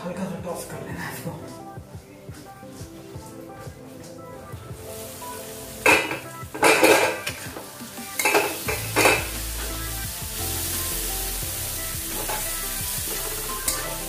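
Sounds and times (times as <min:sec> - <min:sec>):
food sizzling in frying: 0:04.8 - 0:14.0.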